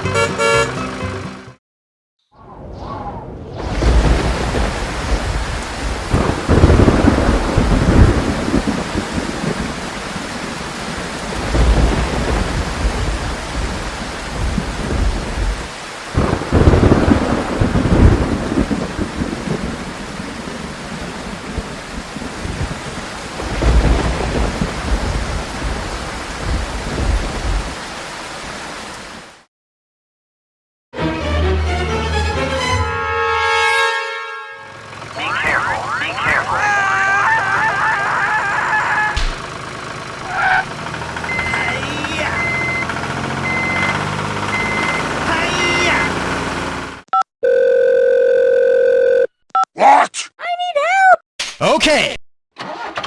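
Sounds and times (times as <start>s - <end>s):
rolling thunder: 2.5s - 9.9s, 10.9s - 19.8s, 23.4s - 27.9s
heavy rain: 3.7s - 29.5s, 34.7s - 47.0s.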